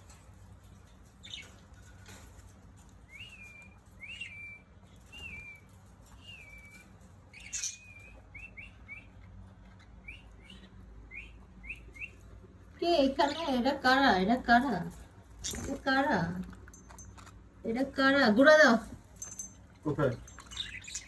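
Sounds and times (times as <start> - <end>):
pet bird chirping: 0.8 - 2.0, 3.0 - 14.0, 15.4 - 16.0, 19.2 - 21.0.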